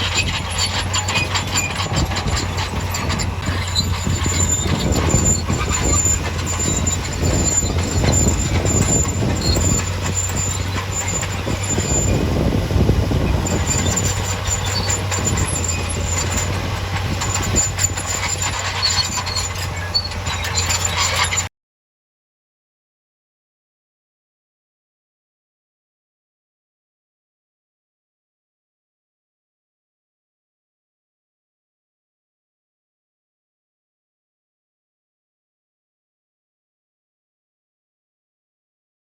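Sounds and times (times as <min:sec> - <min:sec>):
heavy machine engine drone: 0:00.0 - 0:21.5
high squeal: 0:00.0 - 0:21.5
metallic clanking: 0:00.0 - 0:21.5.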